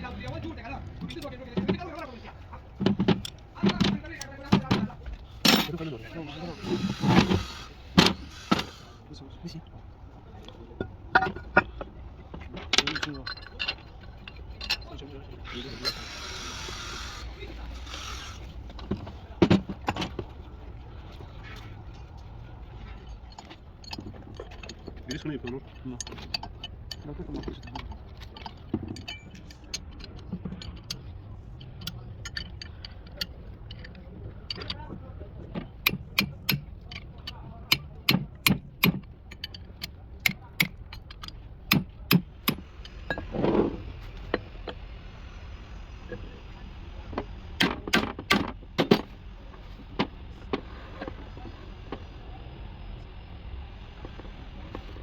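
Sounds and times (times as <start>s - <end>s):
low steady rumble: 0.0s - 55.0s
light clicks and clinks: 10.4s - 16.0s, 18.7s - 43.3s.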